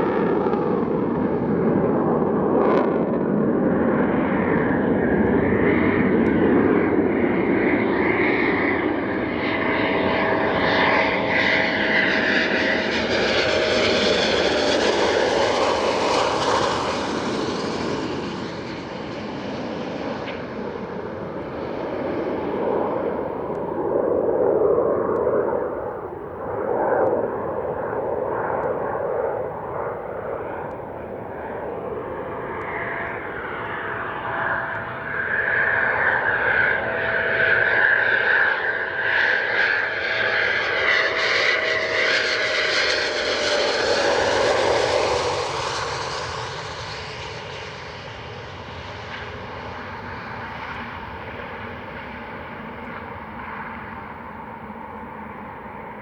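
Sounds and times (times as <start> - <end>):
jet flying low past: 0.0 - 56.0.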